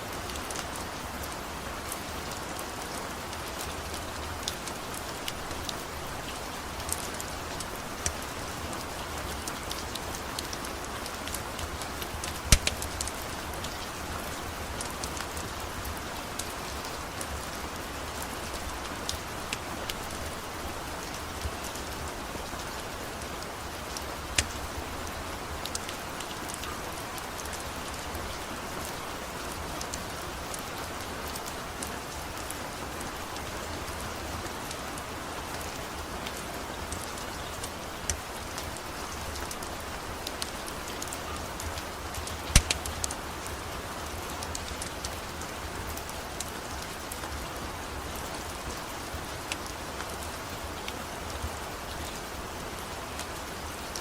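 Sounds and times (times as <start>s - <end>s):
steady rain: 0.0s - 54.0s
wood fire crackling: 3.4s - 16.6s, 23.7s - 25.9s, 37.4s - 43.6s.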